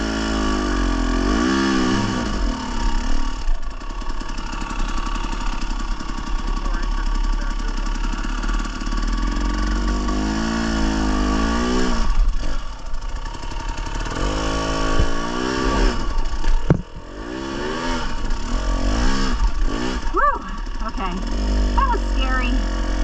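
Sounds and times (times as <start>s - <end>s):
dirt bike engine revving: 0.0s - 23.0s
sharp knock: 16.6s - 16.9s.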